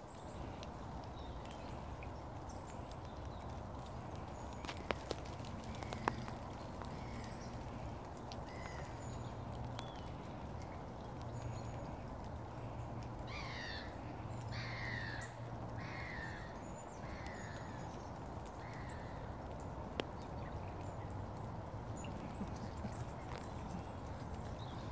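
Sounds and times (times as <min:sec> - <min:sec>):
bird calling falling calls: 0:00.0 - 0:24.9.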